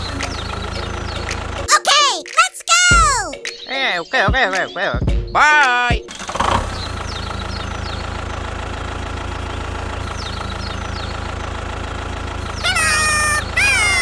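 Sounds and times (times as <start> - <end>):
engine idling with chugging: 6.1 - 12.6
high short falling chirps: 12.6 - 14.0.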